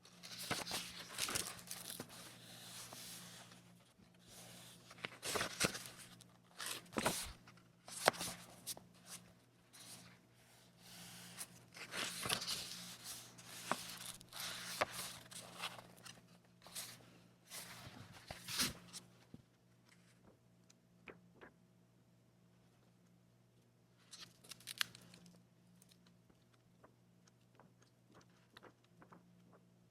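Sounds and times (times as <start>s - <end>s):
paper rustling and crinkling: 0.1s - 10.2s, 10.8s - 19.0s.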